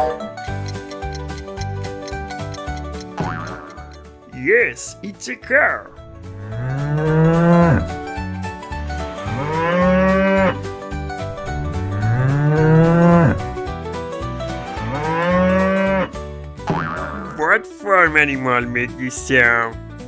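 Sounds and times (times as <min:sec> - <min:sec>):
cow mooing: 0:05.8 - 0:08.2, 0:11.3 - 0:13.6.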